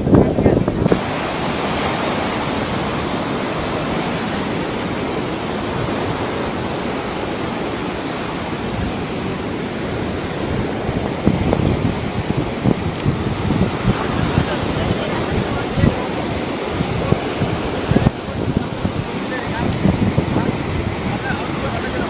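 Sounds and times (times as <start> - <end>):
low gusty thumps: 0.0 - 4.0, 9.9 - 21.6
sea surf on beach: 0.0 - 22.0
wind on microphone: 0.0 - 22.0.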